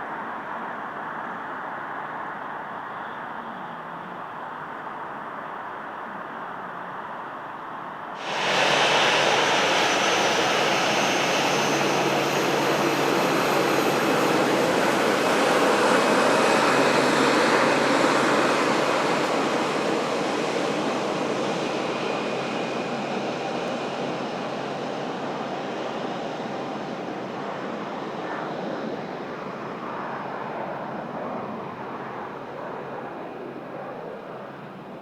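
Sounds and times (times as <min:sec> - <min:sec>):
jet engines passing: 0:08.2 - 0:35.0.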